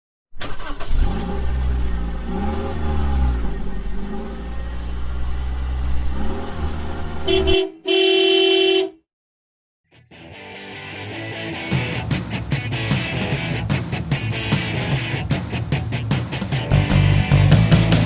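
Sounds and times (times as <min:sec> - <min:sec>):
car engine revving: 0:00.4 - 0:08.8
car horn: 0:07.2 - 0:09.0.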